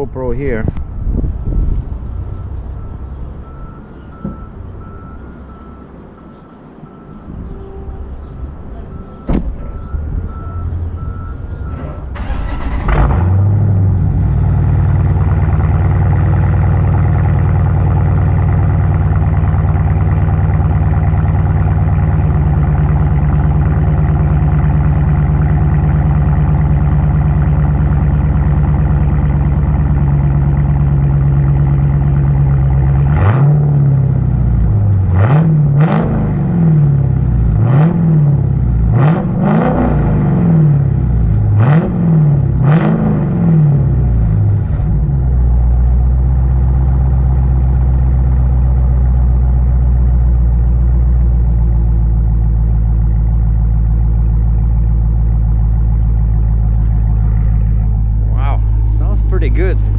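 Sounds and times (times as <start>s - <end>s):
car engine starting and idling: 0.0s - 59.9s
engine revving in blips: 0.7s - 17.6s, 22.2s - 49.5s
beeping chime: 2.2s - 11.8s.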